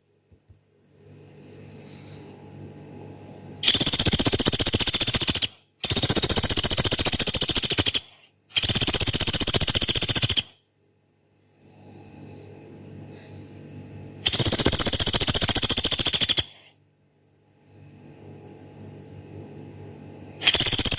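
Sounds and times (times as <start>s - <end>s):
woodpecker rattling trill: 3.6s - 10.6s, 14.2s - 16.6s, 20.4s - 20.9s.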